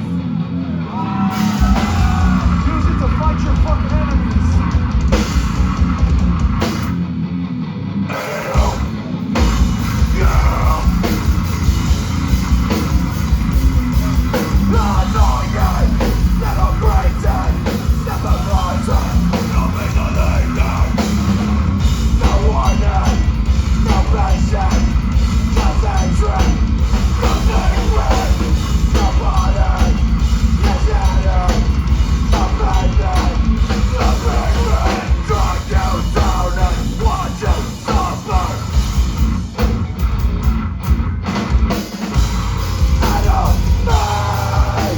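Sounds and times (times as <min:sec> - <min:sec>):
shouted vocals: 0:00.0 - 0:04.8, 0:08.1 - 0:09.0, 0:10.0 - 0:11.2, 0:32.3 - 0:38.7
heavy rock band playing: 0:00.0 - 0:44.9.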